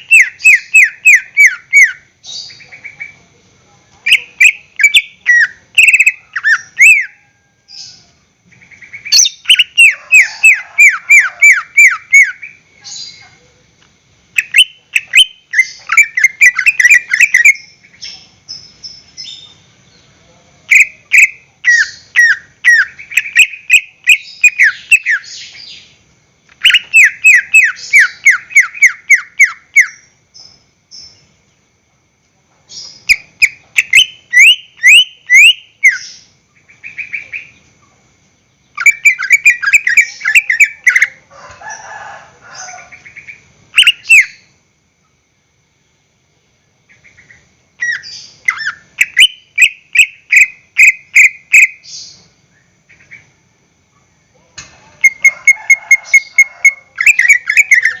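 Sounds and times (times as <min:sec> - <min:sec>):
bird singing whistled notes: 0:00.0 - 0:03.2, 0:04.1 - 0:13.2, 0:14.4 - 0:26.0, 0:26.6 - 0:31.3, 0:32.7 - 0:37.6, 0:38.6 - 0:41.2, 0:43.2 - 0:44.5, 0:47.0 - 0:53.2.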